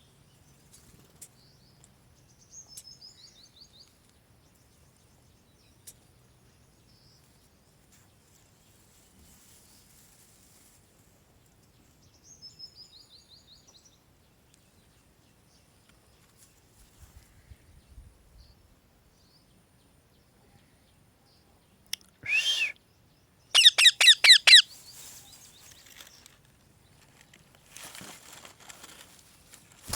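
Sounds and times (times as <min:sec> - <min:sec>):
parrot whistled notes: 0:22.2 - 0:22.7, 0:23.6 - 0:24.6
parrot calling: 0:23.5 - 0:24.7.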